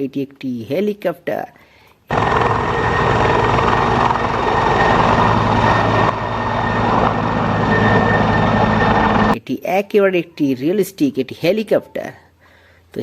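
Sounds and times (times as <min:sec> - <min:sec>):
helicopter rotor whir: 0:02.1 - 0:09.4.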